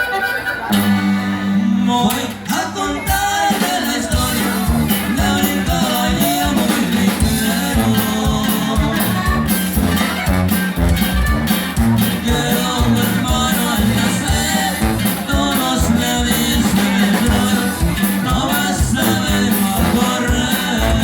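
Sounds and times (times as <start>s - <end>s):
band playing corrido music: 0.0s - 21.0s
bass line: 0.7s - 21.0s
drum beat: 3.1s - 21.0s.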